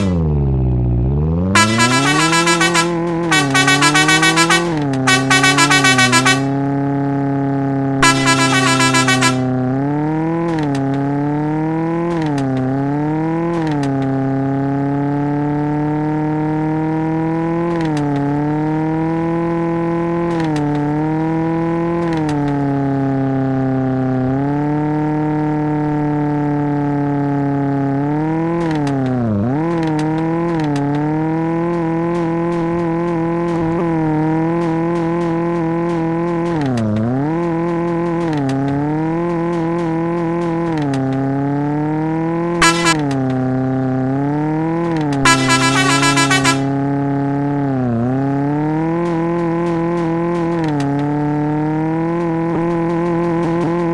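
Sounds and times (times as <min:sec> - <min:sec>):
car engine at high revs: 0:00.0 - 0:53.9
engine stuttering burst: 0:01.6 - 0:06.6, 0:08.0 - 0:09.5, 0:42.6 - 0:43.0, 0:45.3 - 0:46.7.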